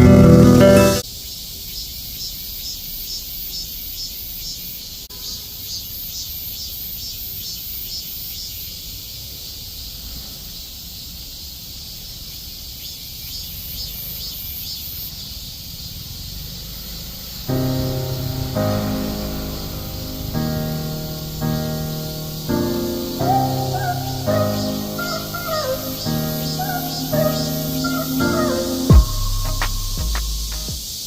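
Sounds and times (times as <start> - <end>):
cicada pulsing song: 11.9 - 31.0
steady high buzz: 17.5 - 31.0.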